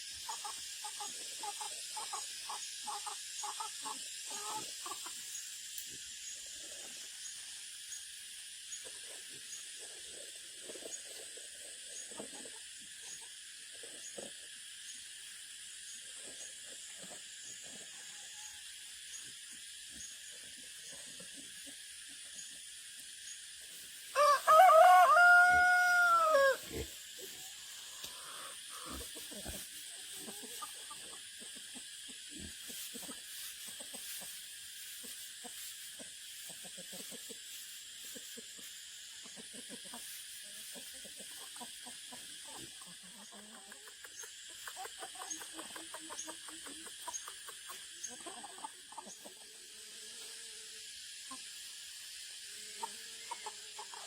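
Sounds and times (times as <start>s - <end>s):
rooster crowing: 24.1s - 26.6s.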